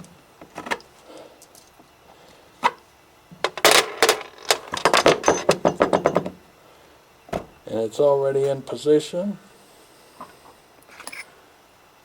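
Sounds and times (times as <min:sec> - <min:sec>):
tools clattering: 0:03.4 - 0:06.4
knocks on a workbench: 0:04.8 - 0:06.4.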